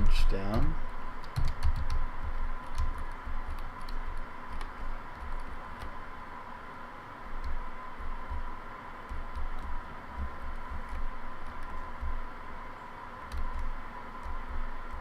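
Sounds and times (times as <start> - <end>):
keyboard keys clicking: 1.2 - 5.9, 7.4 - 8.5, 9.1 - 12.2, 13.3 - 15.0.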